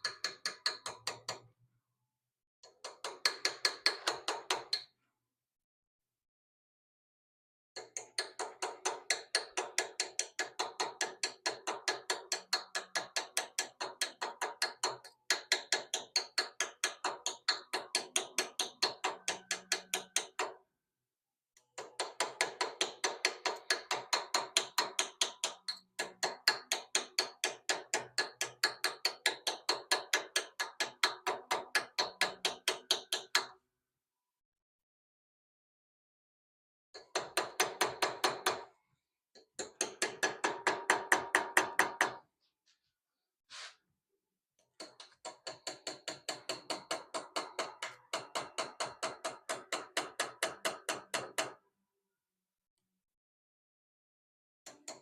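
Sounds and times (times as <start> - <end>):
small hammer tapping metal: 44.7 - 51.6.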